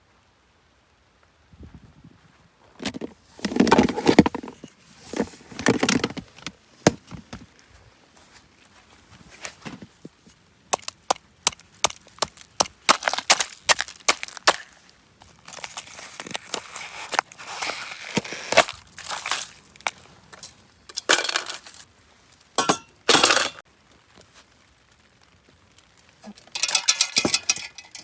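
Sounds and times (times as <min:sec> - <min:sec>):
soft rustling: 0:01.6 - 0:10.5, 0:13.6 - 0:20.7
wood knocking and cracking: 0:02.8 - 0:07.5, 0:10.7 - 0:17.3.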